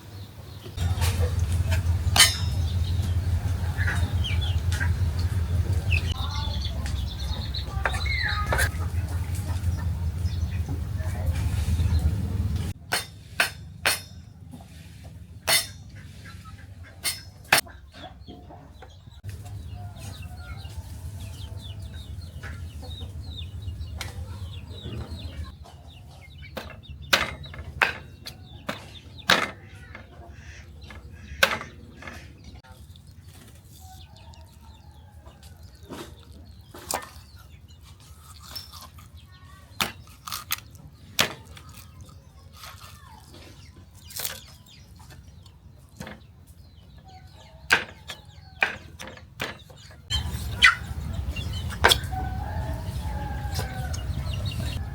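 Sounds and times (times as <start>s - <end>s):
chickens clucking: 0.0s - 54.9s
low hum: 0.8s - 12.8s
sharp knocks: 26.6s - 30.2s.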